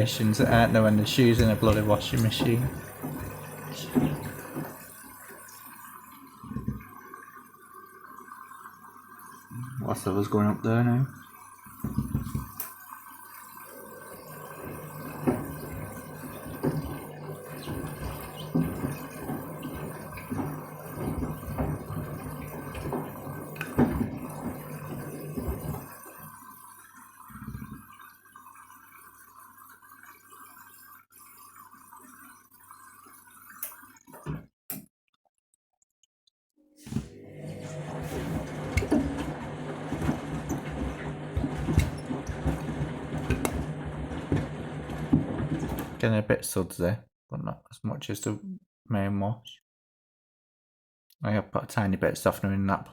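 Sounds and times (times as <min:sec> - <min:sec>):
water sloshing: 0:00.0 - 0:05.0, 0:14.4 - 0:26.3, 0:37.0 - 0:46.0
washing machine motor hum: 0:00.0 - 0:08.4, 0:09.2 - 0:28.0, 0:36.8 - 0:46.0.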